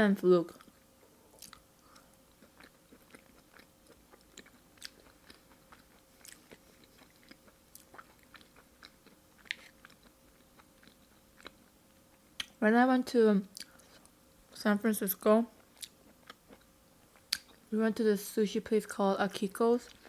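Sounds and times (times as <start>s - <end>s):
person chewing: 0.6s - 12.6s, 13.5s - 14.1s, 15.6s - 17.6s.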